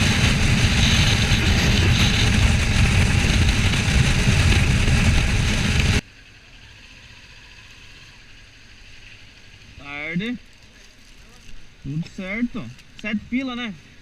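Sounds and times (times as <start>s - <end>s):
wind rush: 0.0s - 6.0s
motorcycle engine and tyre rumble: 0.0s - 14.0s.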